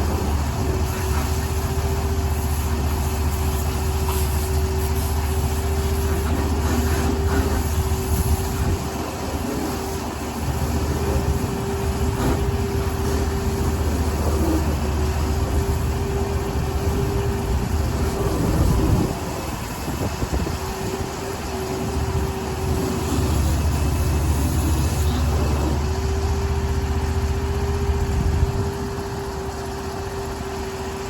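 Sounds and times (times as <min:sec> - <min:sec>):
engine running: 0:00.0 - 0:31.0.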